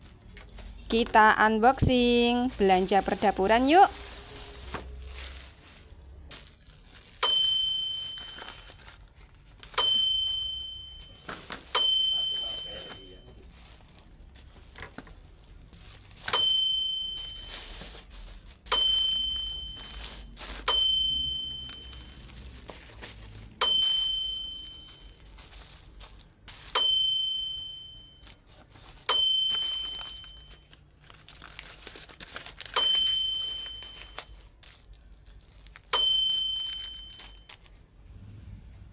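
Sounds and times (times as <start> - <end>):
plastic packaging crinkling and tearing: 0.0 - 9.8, 11.0 - 16.6, 17.2 - 20.7, 21.4 - 26.8, 28.2 - 37.8
high bell-like ding: 9.8 - 11.1, 11.8 - 13.1, 26.8 - 28.2, 36.0 - 37.4.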